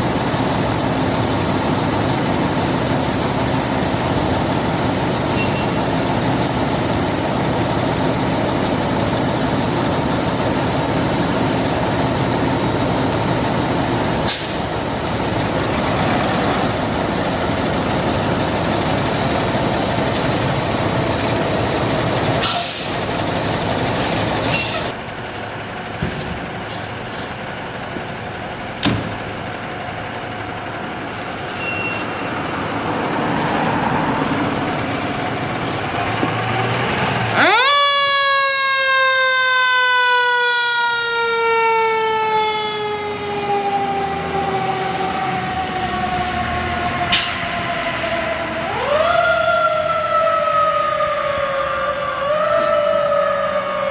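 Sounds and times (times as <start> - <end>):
diesel engine running: 0.0 - 53.9
air brake hisses: 5.3 - 5.9, 14.3 - 14.7, 22.4 - 23.0, 24.0 - 25.0.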